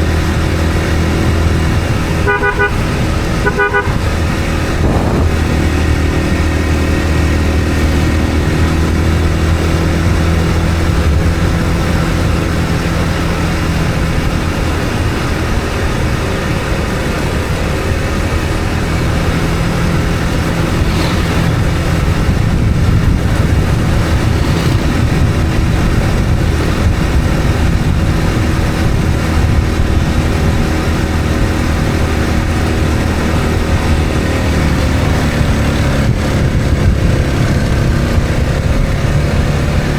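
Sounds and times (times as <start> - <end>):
road and tyre noise: 0.0 - 39.9
vehicle engine hum: 0.0 - 39.9.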